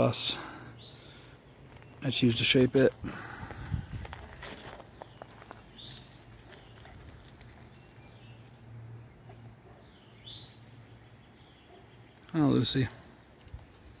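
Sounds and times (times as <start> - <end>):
small bird chirping: 4.9 - 12.4.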